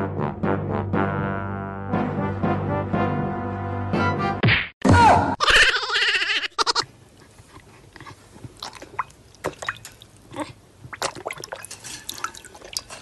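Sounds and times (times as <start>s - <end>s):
dog lapping water: 7.3s - 13.0s.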